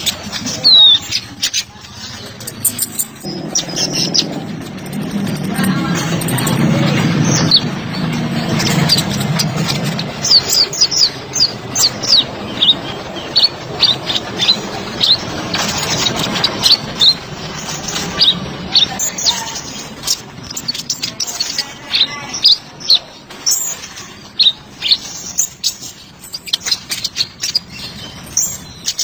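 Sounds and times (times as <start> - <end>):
bird chirping rapidly: 0.0 - 29.0
low hum: 2.2 - 20.6.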